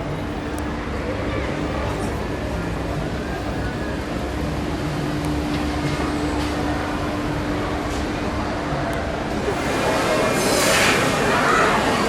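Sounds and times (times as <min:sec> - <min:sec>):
machinery hum and low rumble: 0:00.0 - 0:12.0.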